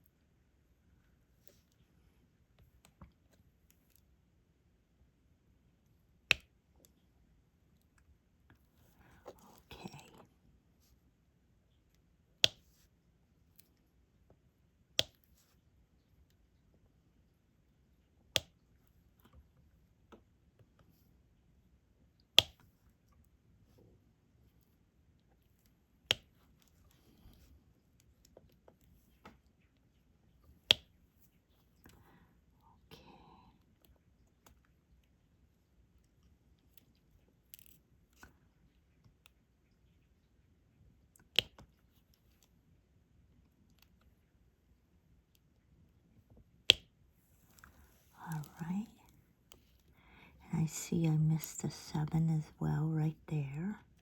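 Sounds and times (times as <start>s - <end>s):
stylus clicks and taps: 15.0s - 15.3s.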